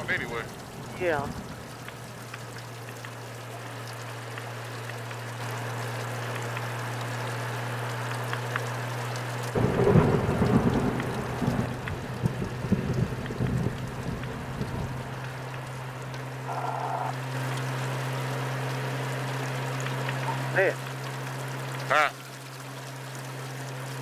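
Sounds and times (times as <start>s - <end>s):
rain and wind hiss: 0.0s - 24.0s
motorcycle engine drone: 5.5s - 20.7s
wind buffeting microphone: 9.6s - 15.2s.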